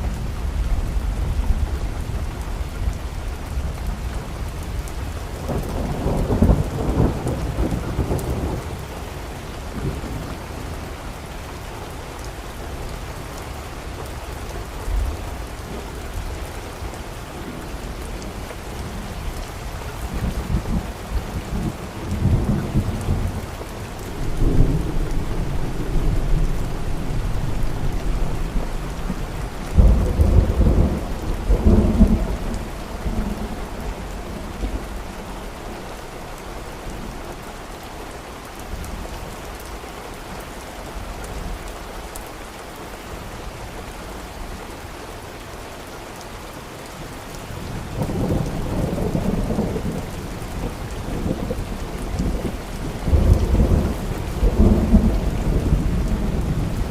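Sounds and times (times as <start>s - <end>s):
steady rain: 0.0s - 56.9s
rolling thunder: 24.0s - 35.3s.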